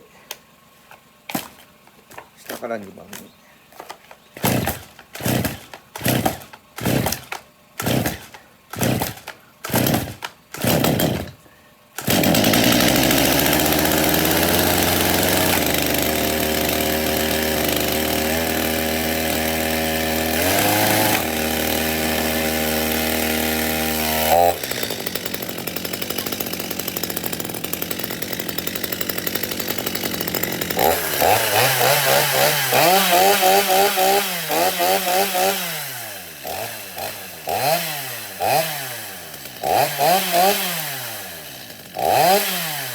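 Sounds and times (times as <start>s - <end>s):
starter cord pulls: 0.3s - 11.4s, 12.0s - 13.6s
chainsaw engine running and revving: 4.4s - 11.4s, 12.0s - 42.9s.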